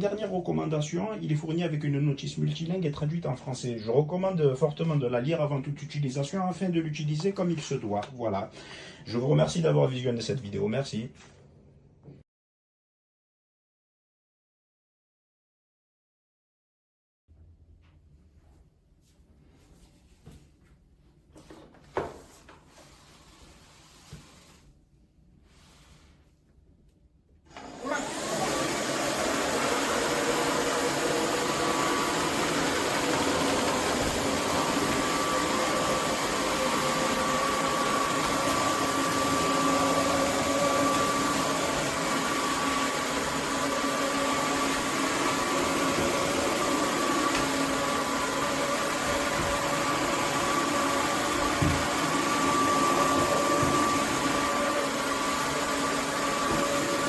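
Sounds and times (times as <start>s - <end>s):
vacuum cleaner running: 27.5s - 57.0s.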